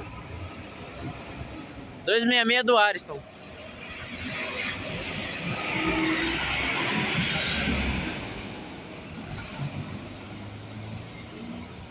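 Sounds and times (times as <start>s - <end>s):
bus driving past: 3.2s - 11.9s.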